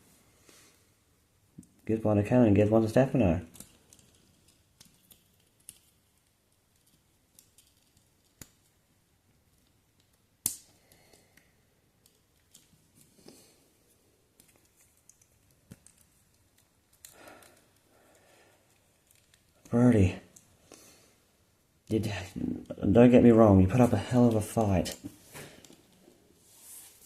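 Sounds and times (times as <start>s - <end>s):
small clicks and taps: 3.4s - 8.8s, 14.4s - 20.5s
faint rustling: 23.7s - 27.0s.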